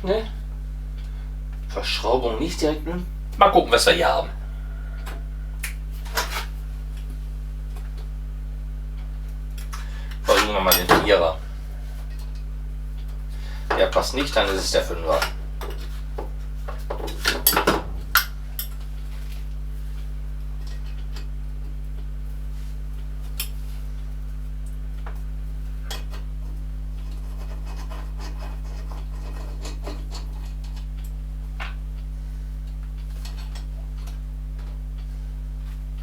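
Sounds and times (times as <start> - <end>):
steady low hum: 0.0 - 36.0
hand tool scraping: 27.0 - 30.6.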